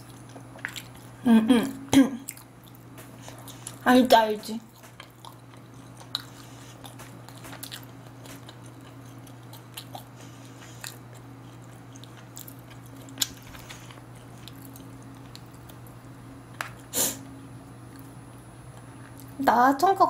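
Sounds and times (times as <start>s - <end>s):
chewing and mouth clicks: 0.0s - 1.2s, 2.2s - 3.8s, 4.6s - 16.8s
steady low hum: 0.0s - 20.0s.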